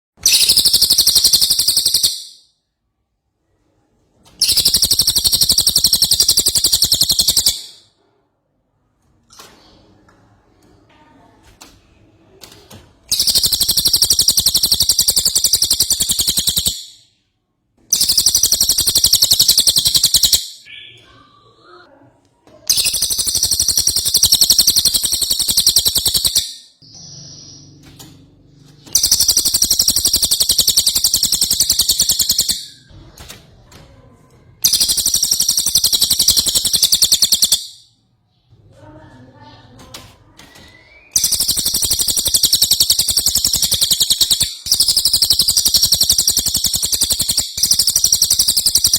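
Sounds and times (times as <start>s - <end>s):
songbird trilling: 0.3s - 2.4s, 4.4s - 7.8s, 13.1s - 16.9s, 18.0s - 21.0s, 22.7s - 27.8s, 29.0s - 32.8s, 34.6s - 37.8s, 41.0s - 48.9s.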